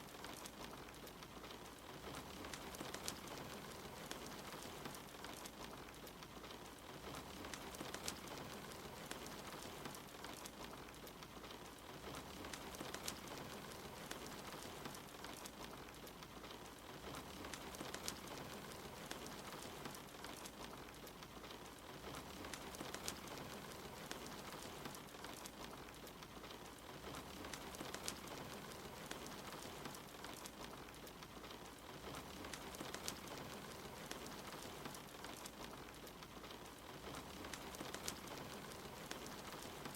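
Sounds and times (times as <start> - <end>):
steady rain: 0.0 - 39.9
wood fire crackling: 0.0 - 39.9.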